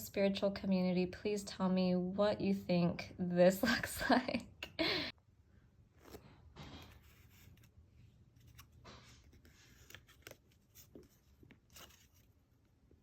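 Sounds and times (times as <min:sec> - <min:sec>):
paper rustling and folding: 0:05.9 - 0:13.0.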